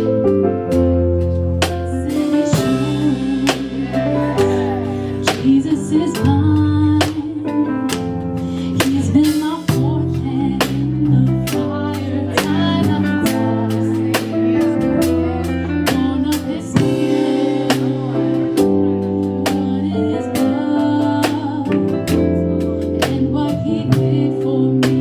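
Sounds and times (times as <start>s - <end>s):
drum hits: 1.6s - 6.4s
person singing: 1.7s - 7.7s, 8.7s - 25.0s.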